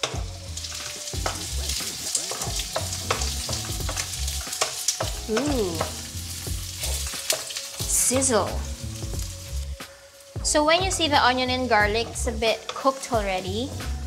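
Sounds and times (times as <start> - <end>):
garlic and onion sizzling in oil: 0.0 - 14.0
wooden spoon scraping a wok: 0.6 - 9.7.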